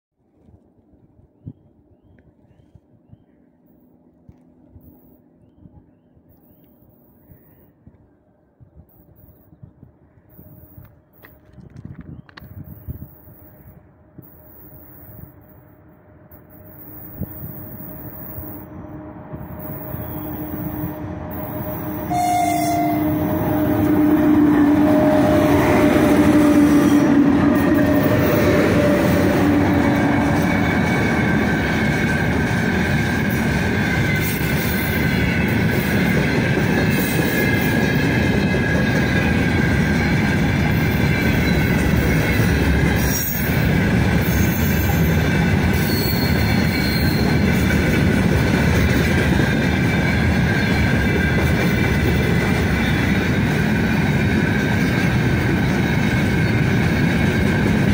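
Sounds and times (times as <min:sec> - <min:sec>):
wagon wheels rumbling on rail: 0:10.3 - 0:57.9
high wheel squeal: 0:16.3 - 0:23.8, 0:38.8 - 0:47.6.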